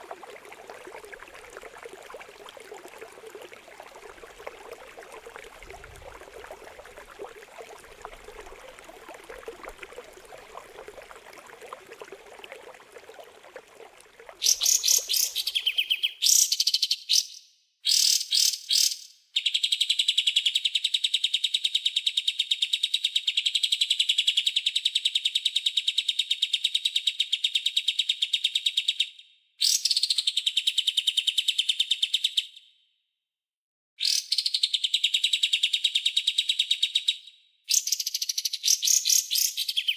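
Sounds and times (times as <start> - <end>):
water trickling: 0.0 - 16.0.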